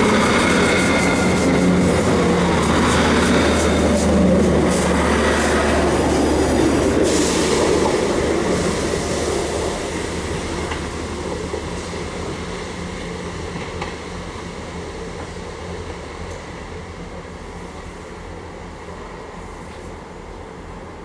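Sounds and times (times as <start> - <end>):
low diesel drone: 0.0 - 9.2.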